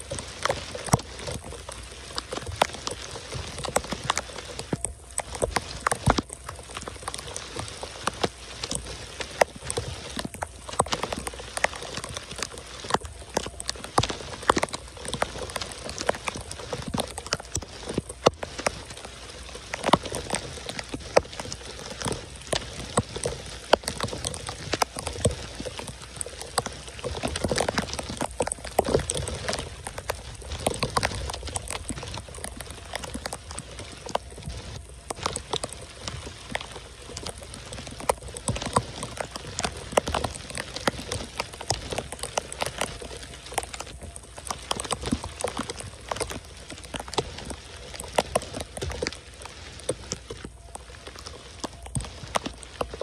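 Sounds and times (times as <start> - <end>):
heavy rain on paved street: 0.0 - 53.0.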